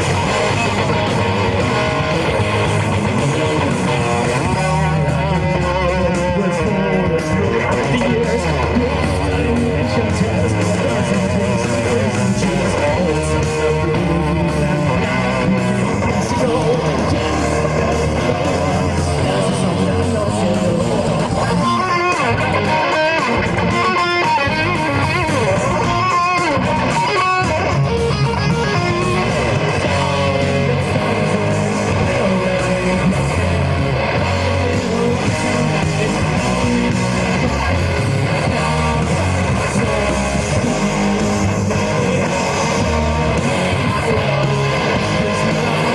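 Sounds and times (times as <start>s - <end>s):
live rock band playing: 0.0s - 45.9s
solo guitar line: 0.0s - 45.9s.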